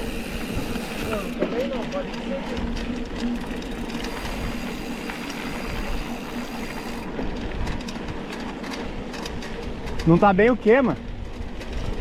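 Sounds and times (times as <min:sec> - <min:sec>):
wind on microphone: 0:00.0 - 0:08.2
bike tyres rumbling on dirt: 0:00.0 - 0:12.0.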